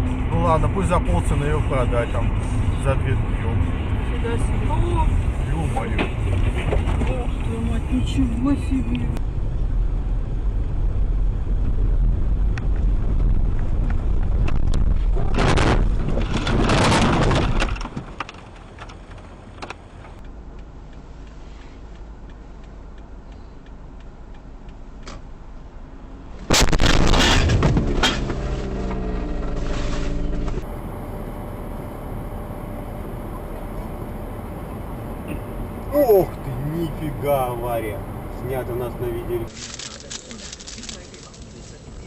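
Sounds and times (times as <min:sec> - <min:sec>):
vehicle road and engine rumble: 0:00.0 - 0:42.0
loud crash-like burst: 0:26.4 - 0:28.7.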